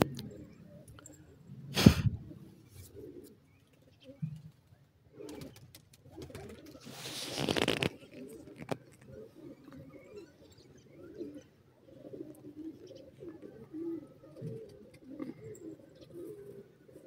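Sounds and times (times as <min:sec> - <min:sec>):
soft low cooing bird calls: 0:00.0 - 0:17.0
hissing rustling noise: 0:06.8 - 0:08.0.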